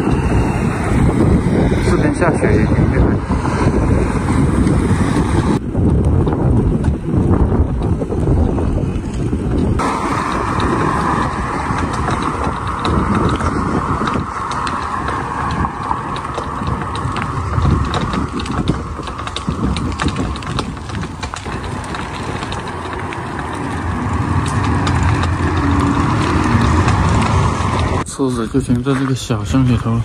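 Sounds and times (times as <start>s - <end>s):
trailer rattling: 0.0s - 30.0s
wind buffeting microphone: 0.0s - 30.0s
bicycle chain and freewheel ticking: 9.8s - 28.0s.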